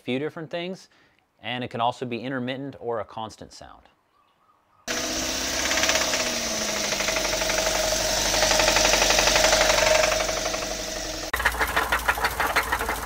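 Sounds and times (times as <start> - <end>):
engine knocking: 4.9 - 13.0.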